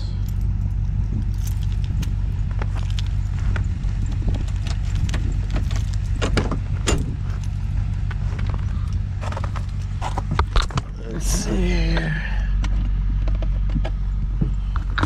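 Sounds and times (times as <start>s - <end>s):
engine idling: 0.0s - 15.0s
clicks and jingling keys: 1.2s - 2.2s.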